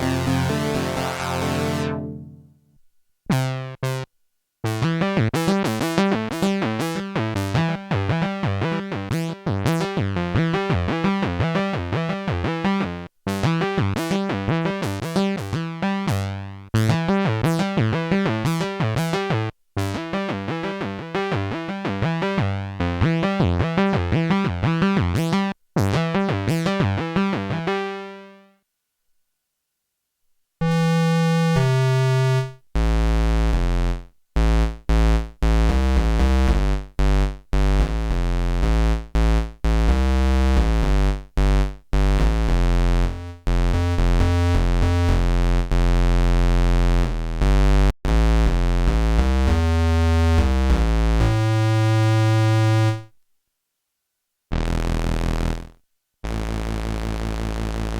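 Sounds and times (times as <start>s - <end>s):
synthesizer fast run of notes: 0.0s - 2.5s
short chopped synth notes: 0.0s - 2.6s
synthesizer bass line: 0.0s - 2.6s, 30.7s - 51.6s.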